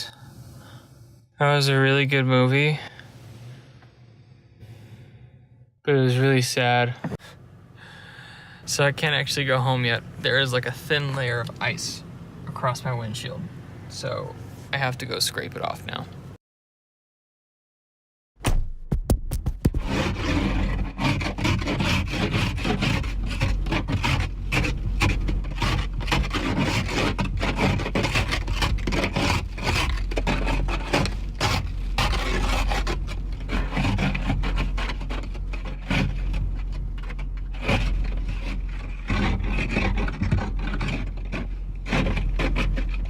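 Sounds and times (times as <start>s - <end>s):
steady low hum: 19.7s - 43.0s
ice scraper rasping windshield: 19.8s - 43.0s.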